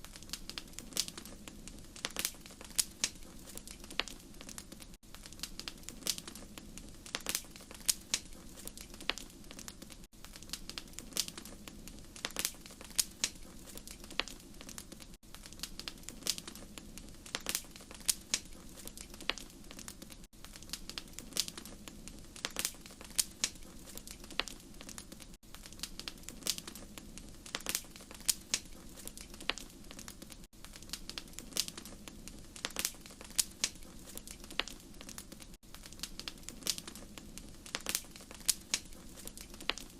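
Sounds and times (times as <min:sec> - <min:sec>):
low rumble of flame: 0:00.0 - 0:39.9
wood fire crackling and popping: 0:00.0 - 0:39.9.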